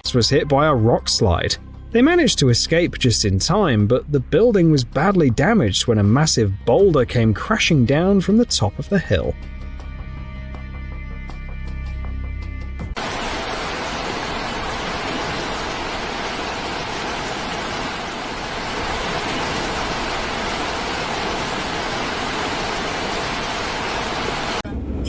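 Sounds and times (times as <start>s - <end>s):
music: 0.0s - 13.0s
steady rushing noise: 13.0s - 25.0s.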